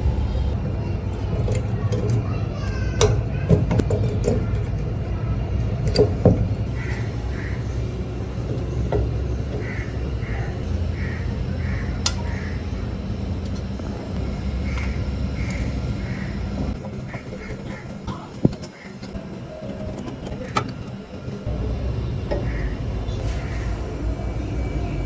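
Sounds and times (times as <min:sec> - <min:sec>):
steady low rumble: 0:00.0 - 0:25.0
bird calling: 0:06.7 - 0:21.5, 0:22.2 - 0:25.0.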